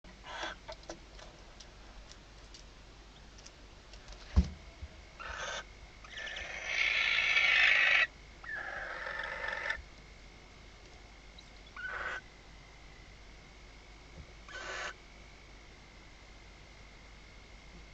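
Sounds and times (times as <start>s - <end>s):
owls hissing screeches: 5.2s - 9.8s, 11.7s - 12.2s, 14.5s - 15.0s.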